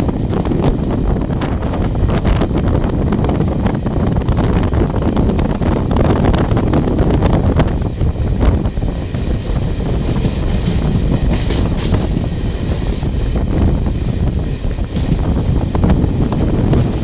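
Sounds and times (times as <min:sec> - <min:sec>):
train wheels clattering: 0:00.0 - 0:02.7, 0:08.8 - 0:17.0
wind buffeting microphone: 0:00.0 - 0:17.0.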